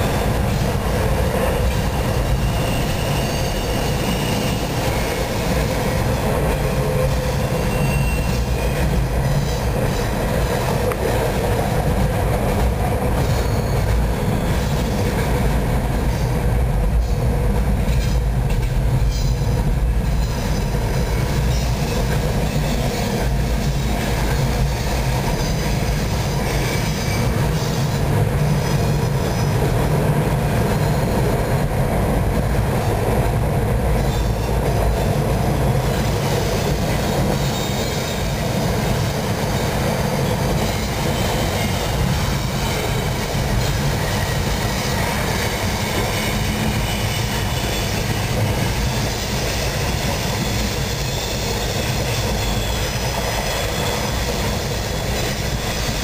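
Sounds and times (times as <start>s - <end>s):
train wheels rumbling on rails: 0.0s - 56.0s
faint high wheel squeals: 1.8s - 5.3s, 7.3s - 10.1s, 13.2s - 15.1s, 50.2s - 56.0s.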